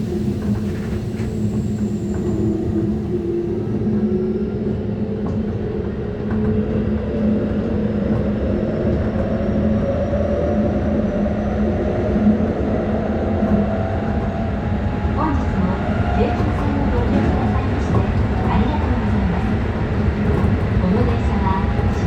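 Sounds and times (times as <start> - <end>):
wheel and rail rumble: 12.2 - 22.0.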